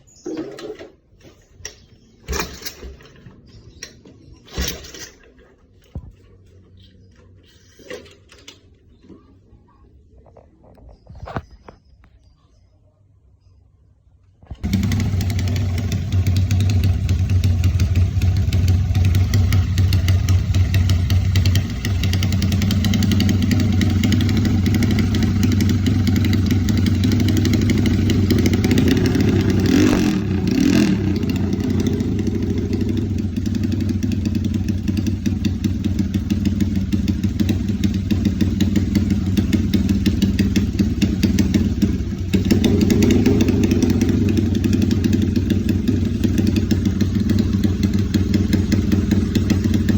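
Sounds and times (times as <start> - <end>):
motorcycle engine running: 14.5 - 49.9.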